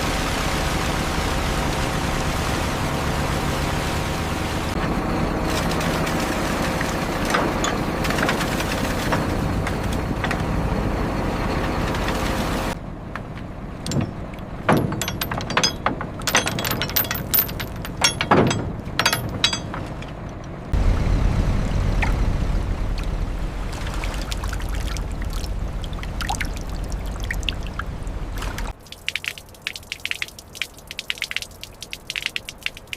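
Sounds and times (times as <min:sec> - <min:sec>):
heavy engine running: 0:00.0 - 0:28.8
metallic clanks and knocks: 0:07.2 - 0:10.6, 0:13.1 - 0:20.8.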